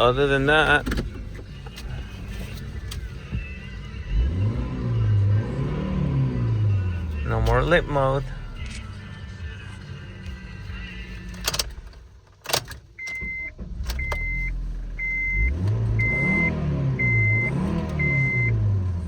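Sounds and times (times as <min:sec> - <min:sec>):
car engine starting and revving: 0:00.0 - 0:19.0
beeps: 0:13.0 - 0:18.6.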